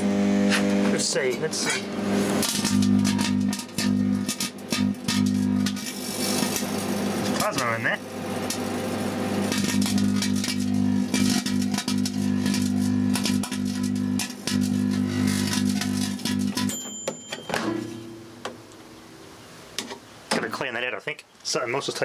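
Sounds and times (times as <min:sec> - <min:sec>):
crackling of electric arcing: 0:00.0 - 0:16.7
microwave oven buzzing hum: 0:00.0 - 0:18.8.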